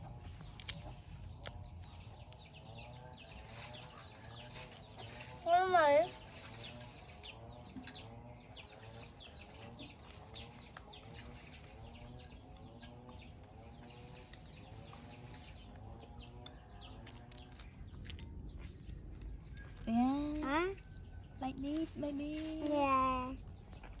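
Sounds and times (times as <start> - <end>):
chickens clucking: 0.0 - 19.7.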